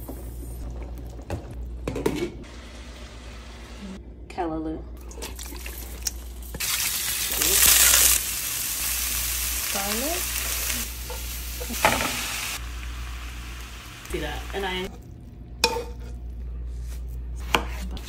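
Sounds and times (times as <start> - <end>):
vegetables sizzling in oil: 6.4 - 14.9.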